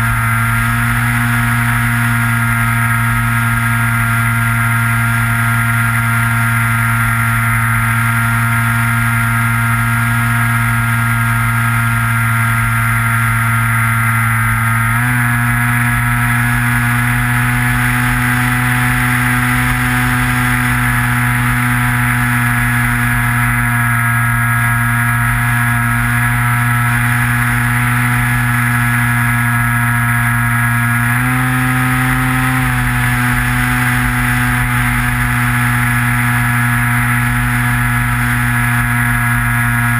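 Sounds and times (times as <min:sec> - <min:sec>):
model airplane motor buzzing: 0:00.0 - 0:39.9.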